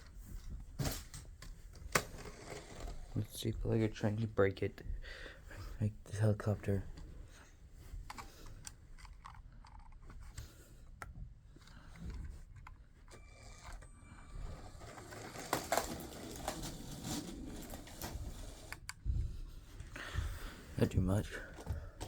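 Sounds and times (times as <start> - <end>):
plastic toy pieces clattering: 14.8 - 18.1.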